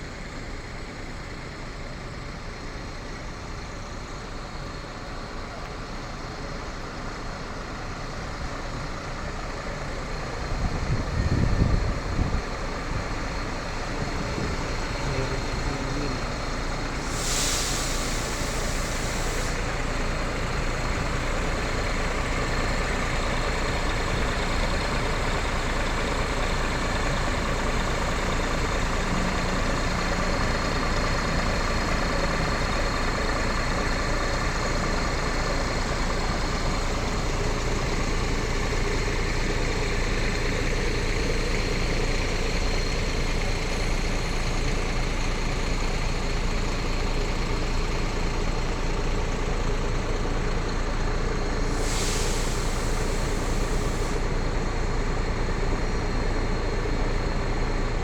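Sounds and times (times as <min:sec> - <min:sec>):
vehicle engine running: 0:00.0 - 0:58.0
short hiss: 0:17.0 - 0:19.8, 0:51.6 - 0:54.4.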